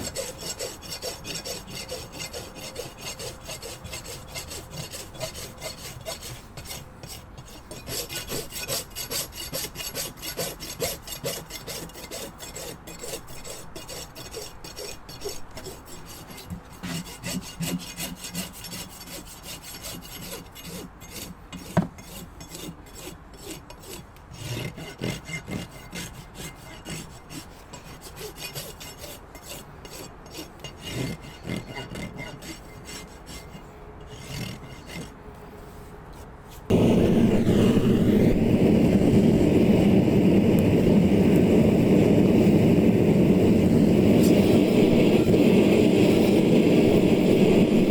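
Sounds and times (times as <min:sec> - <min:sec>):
rasp scraping hoof: 0:00.0 - 0:37.6.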